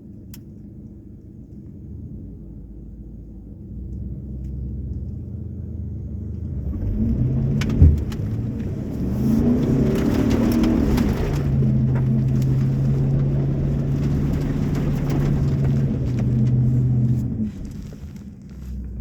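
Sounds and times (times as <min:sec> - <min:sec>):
pickup truck engine revving: 0:05.4 - 0:19.0
clicks and mud spatter: 0:07.1 - 0:19.0.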